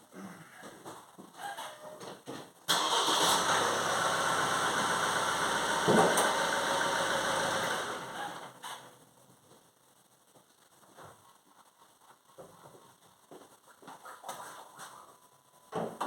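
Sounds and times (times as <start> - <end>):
car engine starting and running: 2.7 - 8.9.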